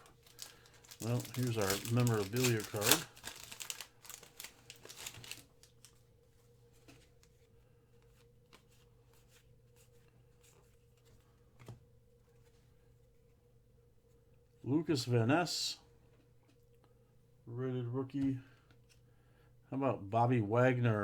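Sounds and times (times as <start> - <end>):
cards rustling and clicking: 0.0 - 6.0
faint steady hum: 0.0 - 21.0.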